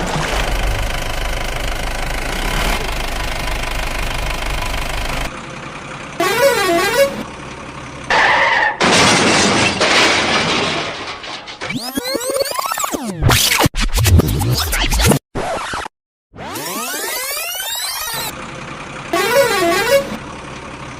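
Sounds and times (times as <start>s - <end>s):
engine running with low rumble: 0.0s - 8.2s, 18.1s - 20.9s
short horn blast: 6.2s - 7.3s, 19.1s - 20.2s.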